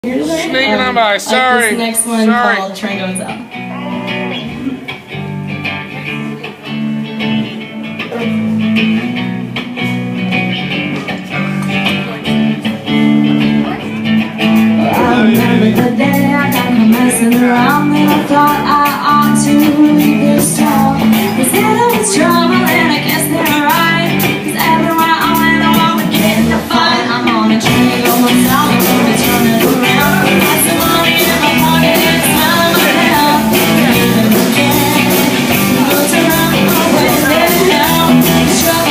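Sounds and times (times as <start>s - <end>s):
live blues-rock band: 0.0s - 38.9s
drums and cymbals: 14.4s - 26.7s, 27.6s - 38.9s
person singing: 14.7s - 38.9s.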